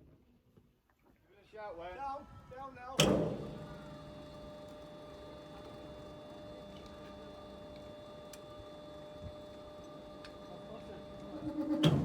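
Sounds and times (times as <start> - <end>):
electrical hum with held tones: 3.4 - 12.0.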